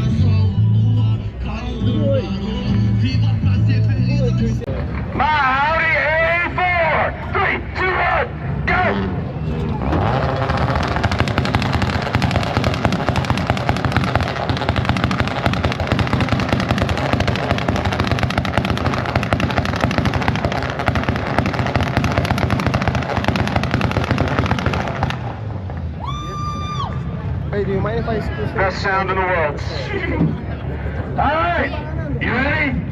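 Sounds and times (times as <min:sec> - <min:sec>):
exhaust pops and bangs: 0:09.6 - 0:25.9.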